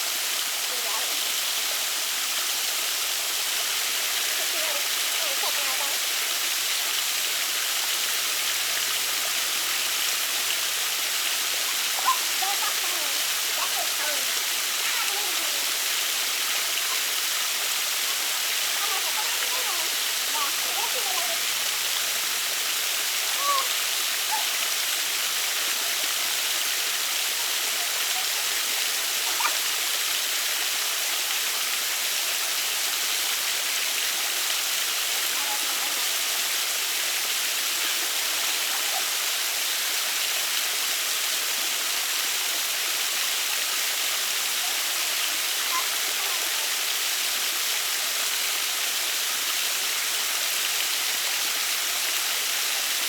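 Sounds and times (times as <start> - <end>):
waterfall hiss: 0.0 - 53.0.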